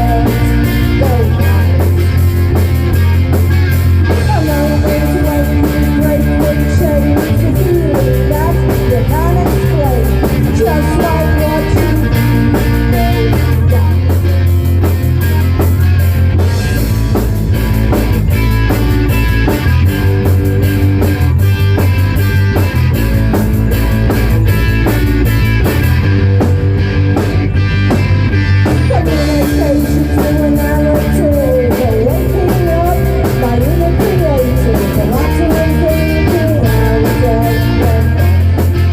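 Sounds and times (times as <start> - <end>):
person singing: 0.0 - 2.2, 4.0 - 14.5, 28.8 - 38.7
bass guitar: 0.0 - 38.9
drum kit beat: 0.0 - 38.9
electric guitar: 0.0 - 38.9.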